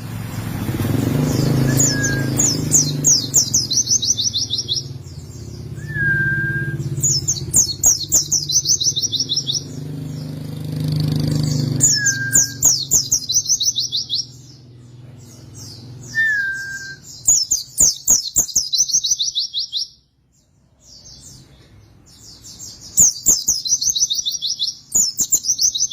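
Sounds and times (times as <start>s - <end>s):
bird singing rapid chattering notes: 0.0s - 25.9s
low whistled bird note: 1.3s - 4.4s.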